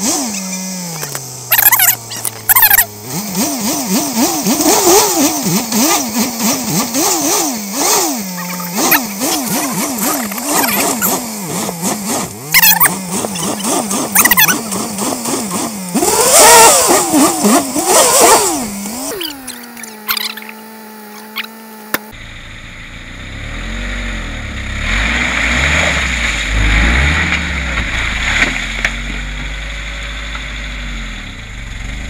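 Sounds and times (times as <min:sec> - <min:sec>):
engine revving: 0:00.0 - 0:32.0.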